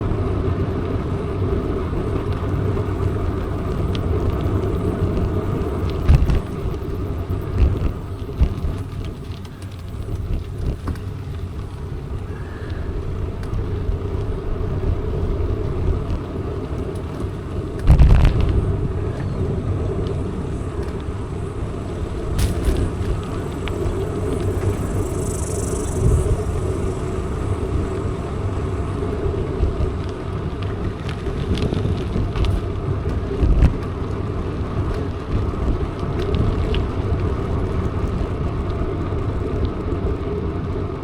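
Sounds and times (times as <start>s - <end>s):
bike tyres rolling: 0.0s - 41.0s
bike knocking over bumps: 2.0s - 24.9s, 29.8s - 37.2s.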